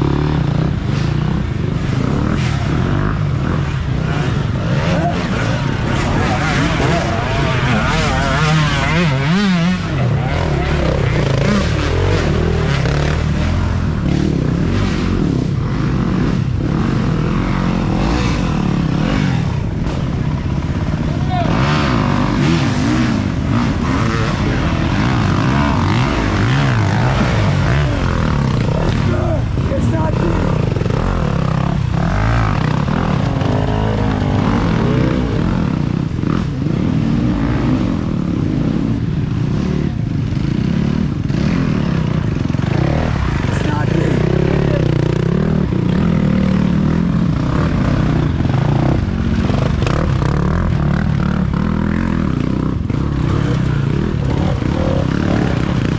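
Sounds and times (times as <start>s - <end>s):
dirt bike engines revving: 0.0s - 55.9s.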